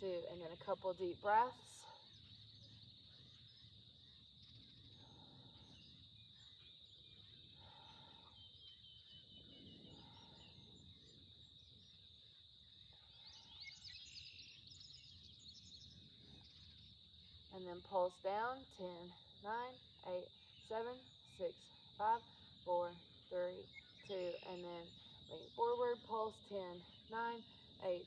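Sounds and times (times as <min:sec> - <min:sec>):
insects chirring: 0:00.0 - 0:28.0
bird chirps: 0:01.7 - 0:17.8, 0:19.8 - 0:28.0.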